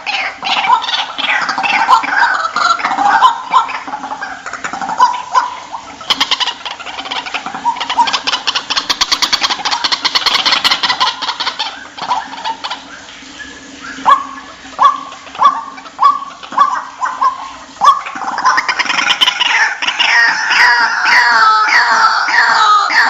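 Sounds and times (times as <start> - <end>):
bird calling sharp notes: 0.0 - 23.0
fast rattling bird call: 0.0 - 23.0.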